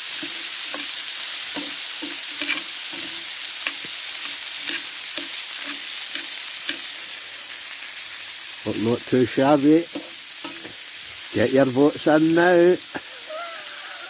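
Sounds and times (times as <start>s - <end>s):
metal spoon scraping a pan: 0.0s - 7.1s, 9.9s - 10.8s
food sizzling in hot oil: 0.0s - 14.0s.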